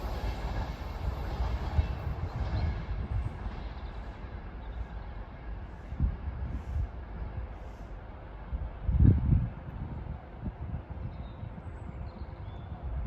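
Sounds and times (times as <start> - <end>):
train rumbling along track: 0.0 - 13.0.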